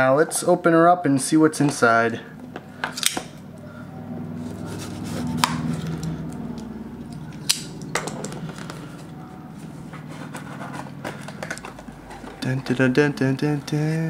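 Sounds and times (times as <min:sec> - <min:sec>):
cardboard packaging scraping and rustling: 0:04.4 - 0:06.0, 0:08.4 - 0:12.9.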